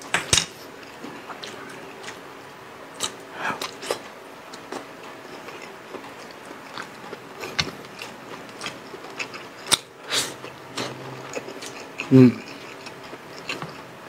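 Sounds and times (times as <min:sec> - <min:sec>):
chewing and lip-smacking: 0:00.8 - 0:02.3, 0:02.9 - 0:13.9.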